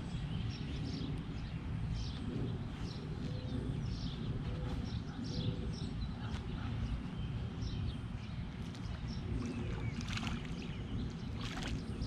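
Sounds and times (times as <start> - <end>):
birds chirping: 0.0 - 12.0
low steady rumble: 0.0 - 12.0.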